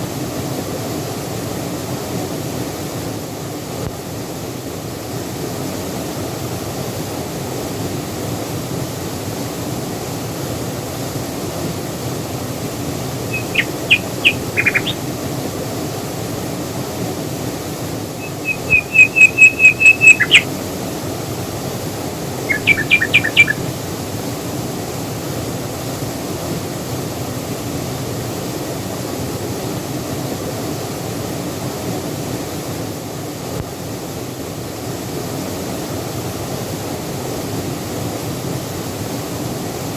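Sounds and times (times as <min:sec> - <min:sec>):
waterfall rushing: 0:12.4 - 0:27.6
bird calling: 0:13.3 - 0:15.2, 0:18.1 - 0:20.6, 0:22.3 - 0:23.7.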